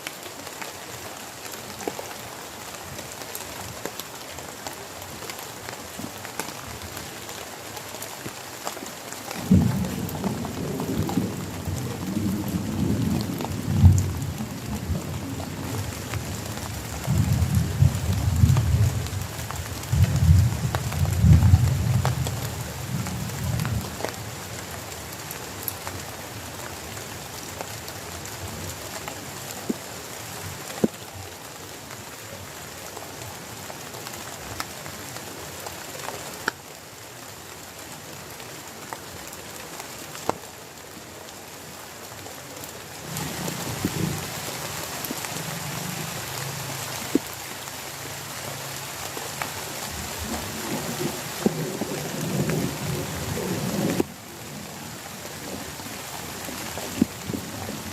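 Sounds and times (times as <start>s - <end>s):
heavy rain: 0.0s - 57.9s
raindrop hits: 9.3s - 24.2s, 49.1s - 54.2s
thunder rumbling: 9.4s - 16.4s.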